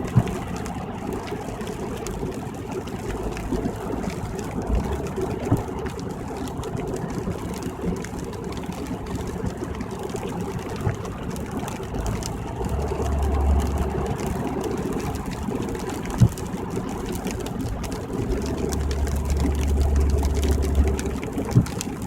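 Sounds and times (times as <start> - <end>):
deeper rumble: 10.5 - 22.0.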